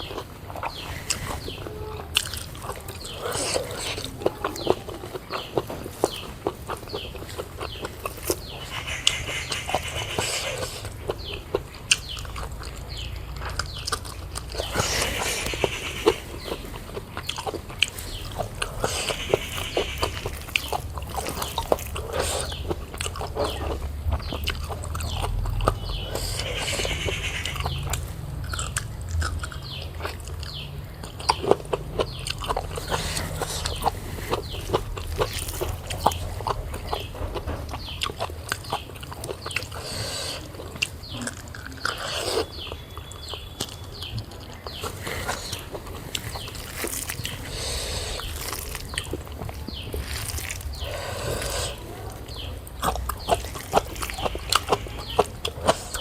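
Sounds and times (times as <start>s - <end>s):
chewing and biting: 0.0s - 56.0s
wet clicks and crackles: 40.7s - 47.5s, 48.1s - 56.0s.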